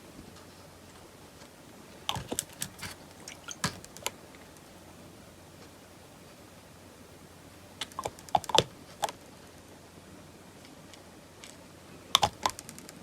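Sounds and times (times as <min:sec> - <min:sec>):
plastic toy clicks and taps: 0:12.2 - 0:13.0.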